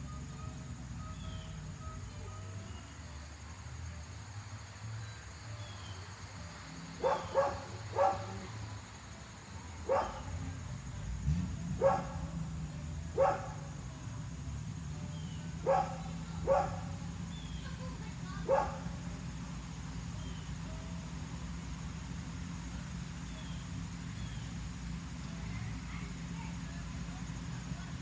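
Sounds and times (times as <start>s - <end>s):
dog barking: 7.0s - 8.6s, 9.8s - 10.6s, 11.7s - 12.4s, 13.1s - 13.8s, 15.5s - 17.2s, 18.3s - 19.1s.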